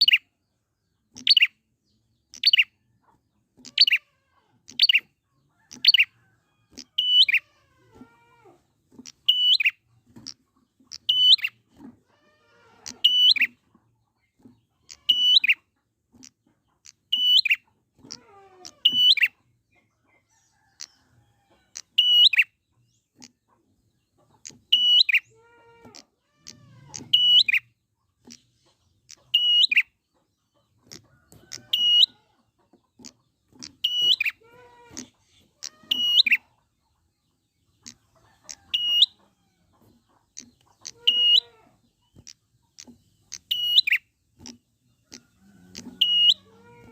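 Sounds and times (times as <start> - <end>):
bird sharp high chirps: 0.0 - 0.3, 1.0 - 1.6, 2.3 - 2.8, 3.6 - 4.1, 4.7 - 7.5, 9.1 - 10.3, 10.9 - 11.6, 12.9 - 13.6, 14.8 - 15.7, 16.9 - 19.4, 21.8 - 22.6, 24.4 - 25.4, 26.4 - 30.0, 30.8 - 32.2, 33.0 - 36.6, 37.8 - 39.3, 40.1 - 46.9
low sliding bird calls: 45.1 - 46.9.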